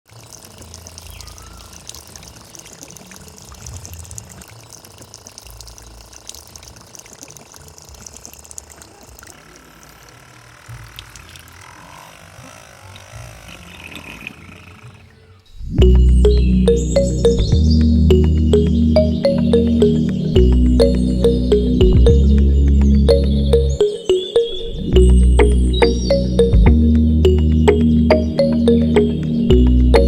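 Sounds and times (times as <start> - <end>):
water gushing from pump: 0.1 - 14.6.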